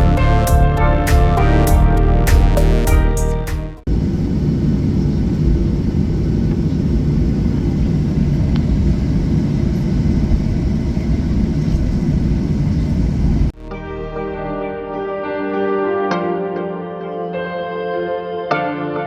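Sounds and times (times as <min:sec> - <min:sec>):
music track: 0:00.0 - 0:03.9, 0:13.6 - 0:19.0
airliner cabin rumble: 0:03.9 - 0:13.6.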